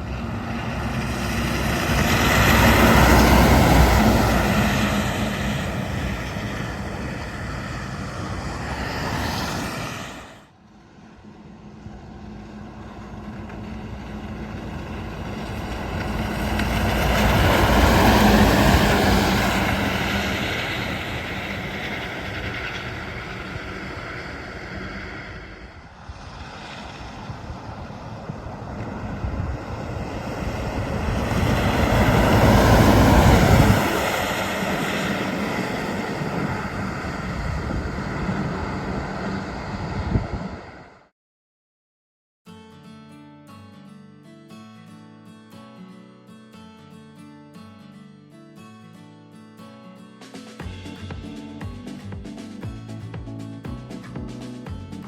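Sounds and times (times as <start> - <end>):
heavy trucks driving past: 0.0 - 41.1.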